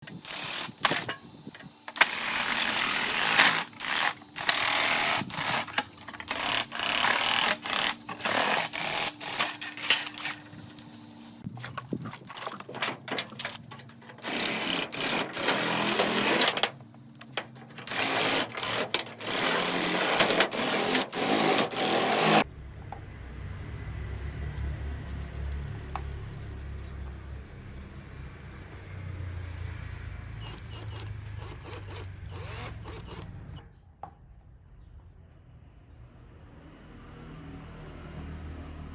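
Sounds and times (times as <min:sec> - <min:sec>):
electric drill whine: 0:00.0 - 0:11.4, 0:14.2 - 0:16.6, 0:17.8 - 0:22.4, 0:30.4 - 0:33.3
sheet metal cutting clicks: 0:12.5 - 0:22.4
low rumble: 0:22.5 - 0:28.4.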